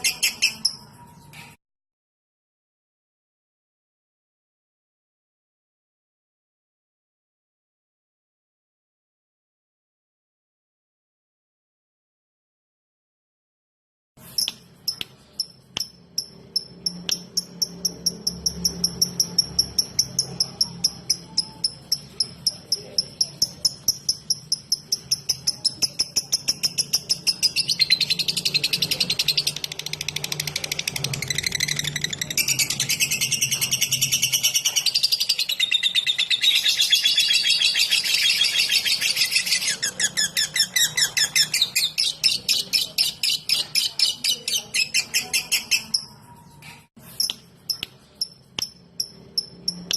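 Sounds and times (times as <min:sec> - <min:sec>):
lovebird chirping rapidly: 0:00.0 - 0:01.3, 0:14.2 - 0:49.9.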